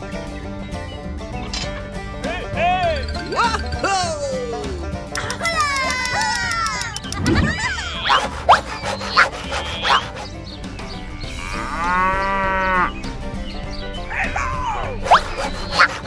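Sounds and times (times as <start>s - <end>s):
cow mooing: 11.1s - 13.0s.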